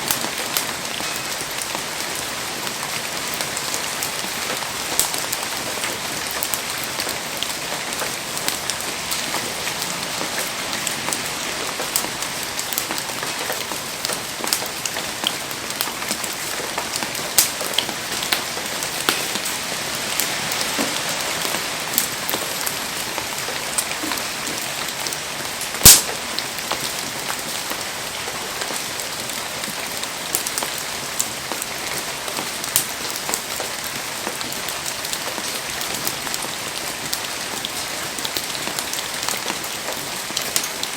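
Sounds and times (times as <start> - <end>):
heavy rain falling: 0.0 - 40.9
raindrops ticking: 0.0 - 40.9
loud crack: 25.8 - 26.3.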